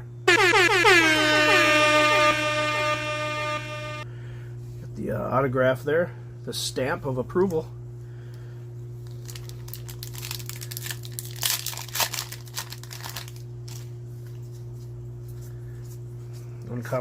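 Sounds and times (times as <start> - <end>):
foil wrapper crinkling and tearing: 9.0 - 13.9.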